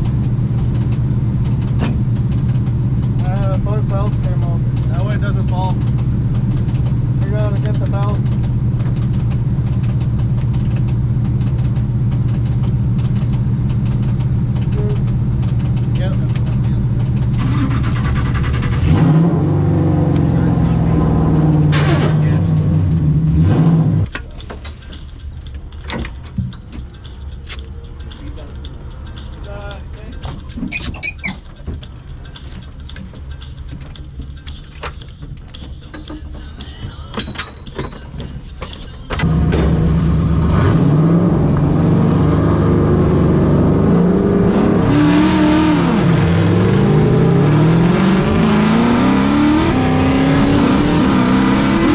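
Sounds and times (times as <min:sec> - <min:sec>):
light clicks and rattles: 0:00.0 - 0:17.4, 0:24.1 - 0:39.3
car engine idling: 0:00.0 - 0:51.9
vehicle droning: 0:00.0 - 0:51.9.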